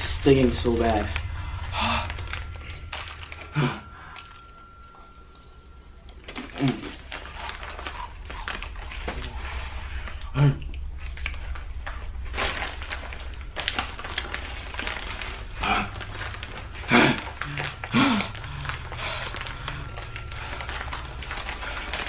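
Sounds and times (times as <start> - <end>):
low hum: 0.0 - 22.0
person breathing hard: 1.2 - 4.5, 15.6 - 20.6
person groaning: 16.8 - 18.6.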